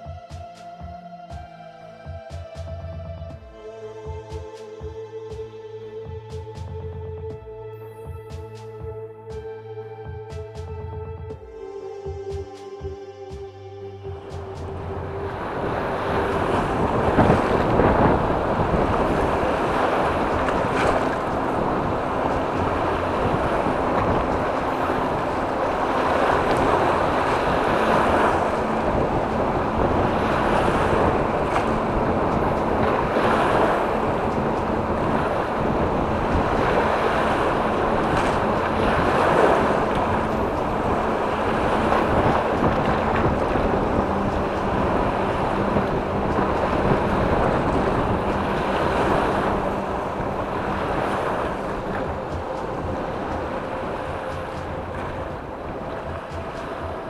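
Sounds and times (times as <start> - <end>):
wind buffeting microphone: 14.0 - 57.0
waves washing onto shore: 14.1 - 57.0.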